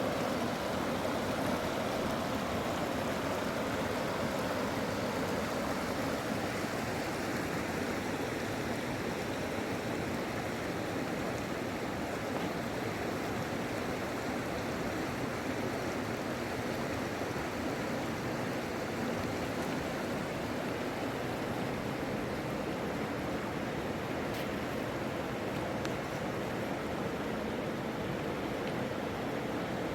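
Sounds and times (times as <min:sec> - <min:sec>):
river water rushing: 0:00.0 - 0:29.9.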